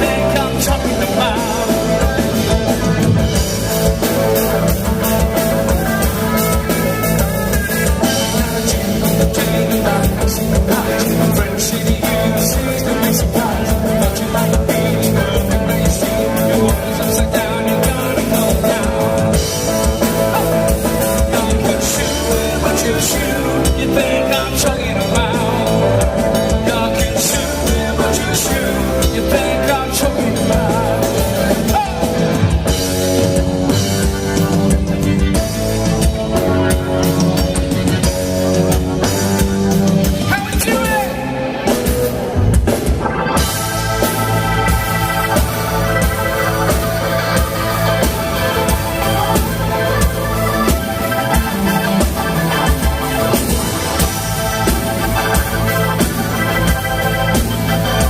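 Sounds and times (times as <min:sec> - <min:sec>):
person singing: 0:00.0 - 0:42.1
guitar lead line bending: 0:00.0 - 0:58.0
live rock band playing: 0:00.0 - 0:58.0.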